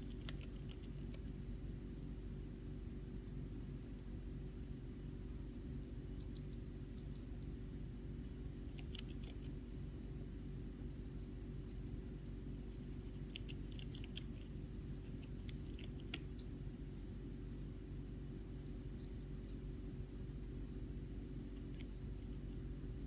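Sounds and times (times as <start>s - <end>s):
hamster crunching leaf: 0.0s - 4.3s, 6.0s - 23.0s
low background hum: 0.0s - 23.0s.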